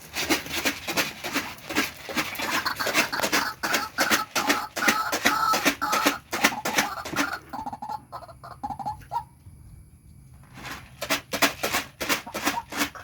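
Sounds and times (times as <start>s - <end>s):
scratchy rustling: 0.0s - 7.0s
waterhen calling harshly: 2.1s - 9.3s.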